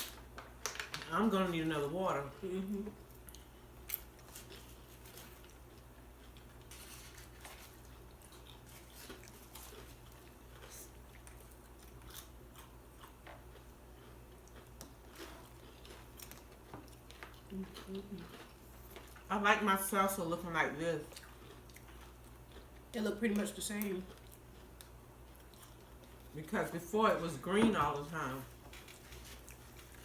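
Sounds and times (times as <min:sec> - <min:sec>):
chewing crunchy chips: 0:03.0 - 0:19.4, 0:21.0 - 0:26.4, 0:28.5 - 0:30.0.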